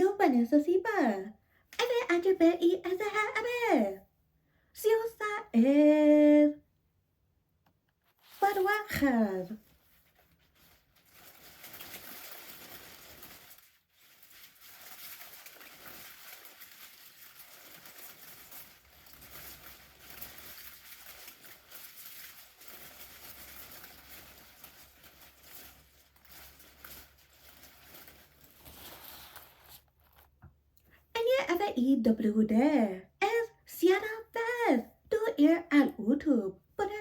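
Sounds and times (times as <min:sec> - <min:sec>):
umbrella rustling and crinkling: 0:08.0 - 0:30.4.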